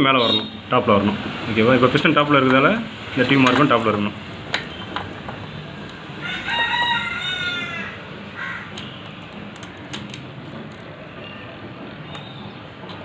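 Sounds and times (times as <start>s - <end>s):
crow cawing: 6.2s - 8.8s.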